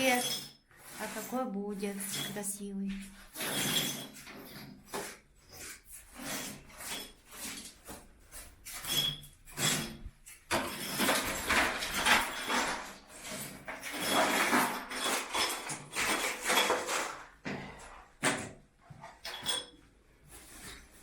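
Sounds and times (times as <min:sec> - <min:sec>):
floor covering scraping and knocking: 0:00.0 - 0:19.6.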